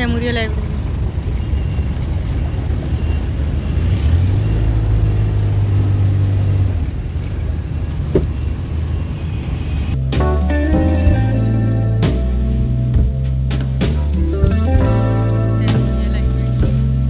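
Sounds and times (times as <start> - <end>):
road rumble: 0.0 - 17.0.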